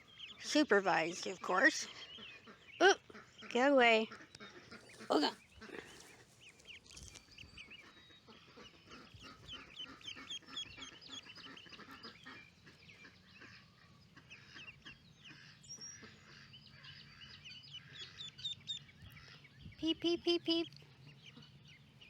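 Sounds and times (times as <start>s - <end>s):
ducklings peeping: 0.0s - 22.0s.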